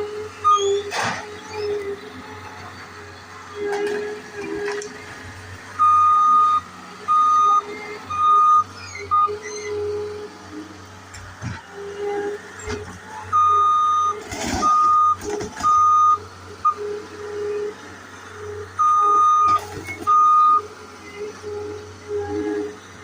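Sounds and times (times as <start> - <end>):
engine running: 0.0 - 23.0
backup alarm beeping: 5.8 - 9.5, 13.3 - 16.9, 18.8 - 20.7.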